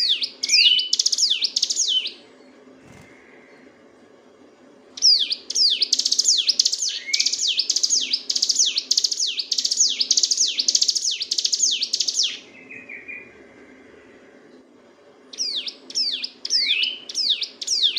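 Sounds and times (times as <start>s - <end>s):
bird singing rattling sweeps: 5.0s - 14.2s.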